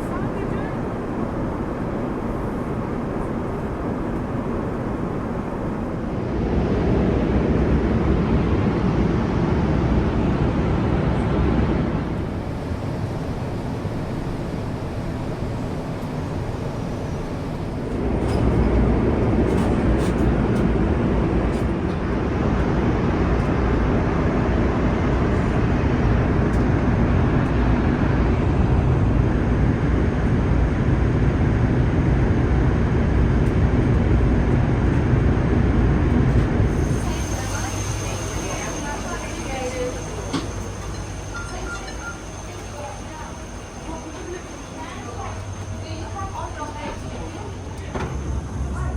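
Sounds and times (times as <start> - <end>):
low rumble of vehicle noise: 0.0 - 48.9
hiss: 36.6 - 40.9.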